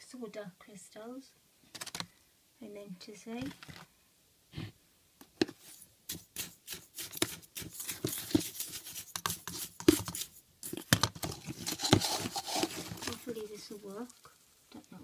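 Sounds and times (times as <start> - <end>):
soda crystals clicking and scraping: 6.4 - 15.0.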